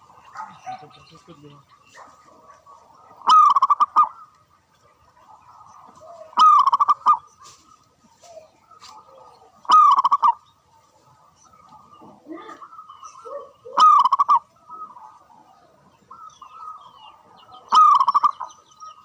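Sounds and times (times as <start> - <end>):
dove cooing: 2.0 - 4.3, 4.9 - 7.3, 8.2 - 18.6.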